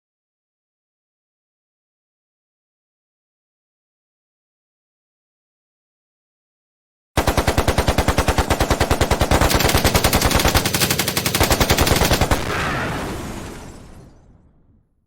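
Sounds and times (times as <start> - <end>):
rapid automatic gunfire: 7.2 - 13.2.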